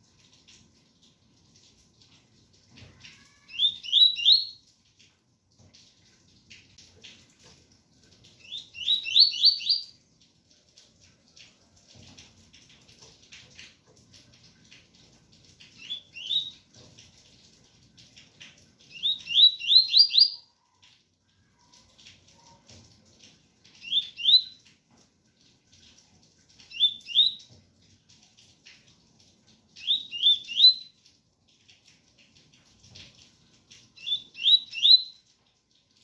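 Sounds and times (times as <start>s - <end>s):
rain pattering: 0.0s - 36.0s
bird singing whistled notes: 3.5s - 4.6s, 8.4s - 9.9s, 15.8s - 16.5s, 18.9s - 20.5s, 23.8s - 24.6s, 26.7s - 27.4s, 29.8s - 30.9s, 34.0s - 35.2s.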